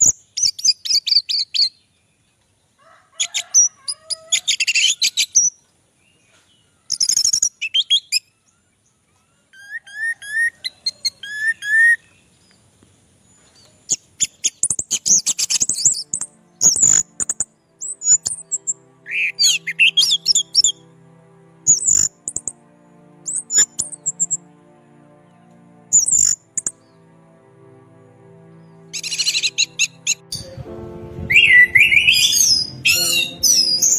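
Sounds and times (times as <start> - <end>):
thrush singing: 15.3 - 33.9
steady low droning tone: 16.0 - 33.9.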